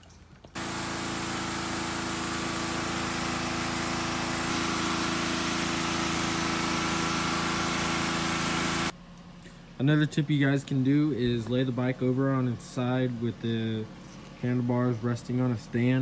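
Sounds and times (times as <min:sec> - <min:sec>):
pressure washer motor hum: 0:00.5 - 0:09.0
pressure washer spraying water: 0:00.6 - 0:08.9.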